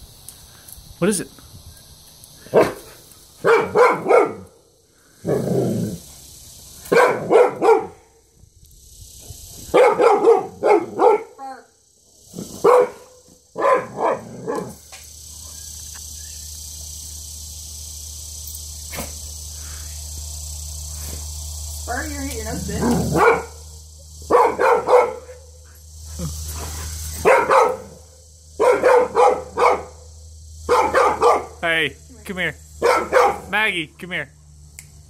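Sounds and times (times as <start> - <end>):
dog barking: 2.5 - 4.5, 6.8 - 8.0, 9.7 - 11.4, 12.6 - 14.8, 22.8 - 23.6, 24.3 - 25.6, 27.2 - 30.0, 30.7 - 31.6, 32.8 - 33.5
steady low hum: 11.7 - 35.0.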